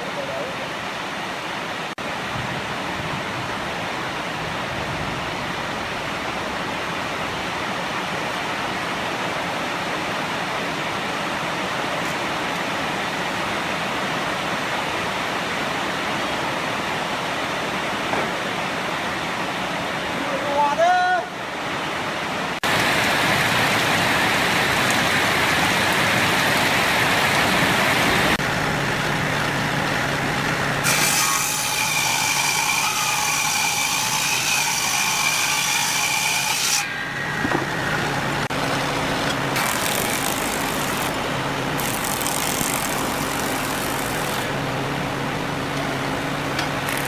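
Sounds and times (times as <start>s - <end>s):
tool cutting spinning wood: 29.5s - 44.6s, 46.6s - 47.0s
high whine: 36.8s - 47.0s.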